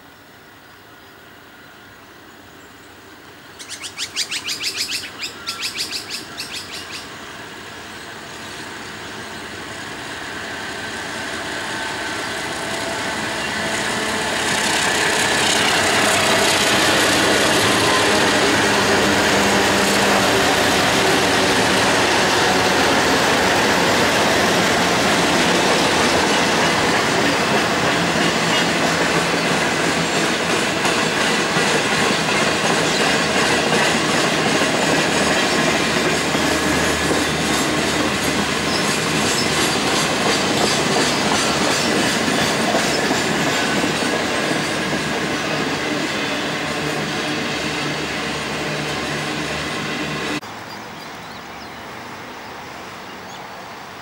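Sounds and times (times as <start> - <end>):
diesel locomotives passing: 0.0 - 54.0
wheels clattering over rail joints: 24.5 - 47.4.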